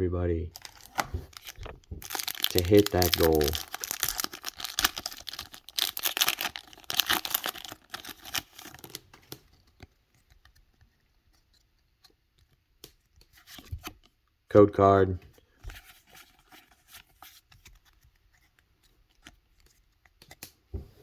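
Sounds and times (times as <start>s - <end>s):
foil wrapper crinkling and tearing: 0.5s - 9.6s.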